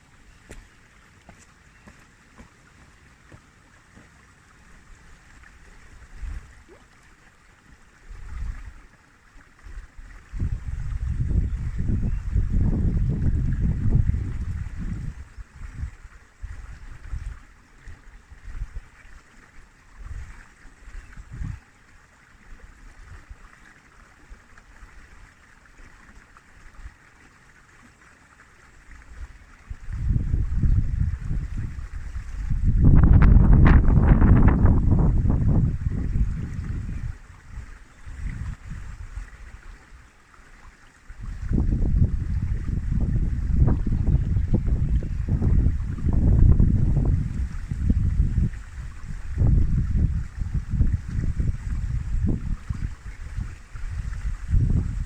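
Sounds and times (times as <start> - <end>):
flowing river water: 0.0 - 55.0
wind gusts on microphone: 9.7 - 18.9, 21.0 - 21.6, 29.7 - 39.6, 41.2 - 55.0.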